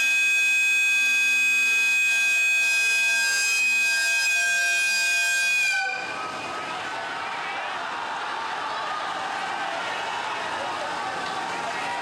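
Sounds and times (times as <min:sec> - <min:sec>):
train horn blast: 0:00.0 - 0:06.2.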